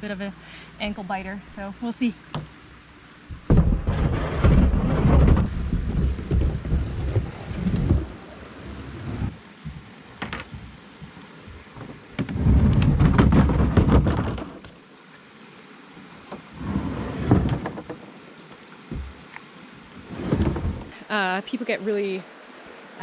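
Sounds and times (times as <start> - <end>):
knocks: 3.3 - 8.1.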